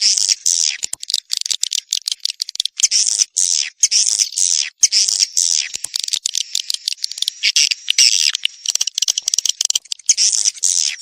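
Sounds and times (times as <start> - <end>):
rapid clicking: 0.7 - 2.9, 5.7 - 7.5, 8.2 - 10.7.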